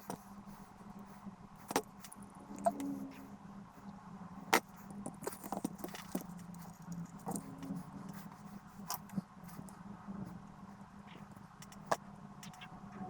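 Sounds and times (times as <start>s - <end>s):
low steady hum: 0.0s - 13.0s
sharp clicks and light taps: 11.6s - 12.7s.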